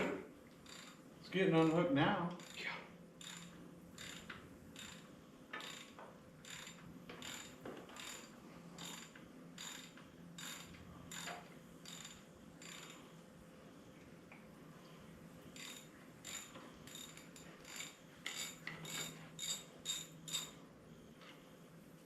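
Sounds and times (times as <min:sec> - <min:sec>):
ratchet wrench clicking: 0:00.6 - 0:01.0, 0:01.6 - 0:13.1, 0:15.6 - 0:20.6.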